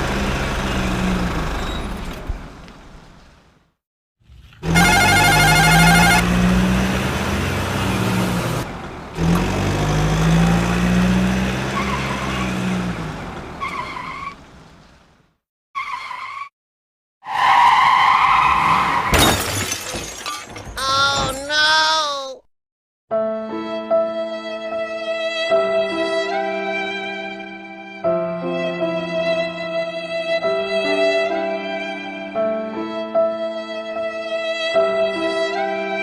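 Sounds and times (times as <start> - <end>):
vehicle engine hum: 0.0 - 15.4.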